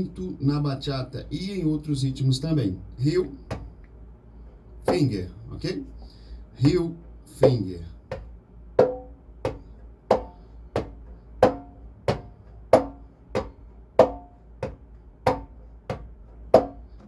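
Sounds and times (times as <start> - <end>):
conga drum hand strokes: 6.6 - 17.0.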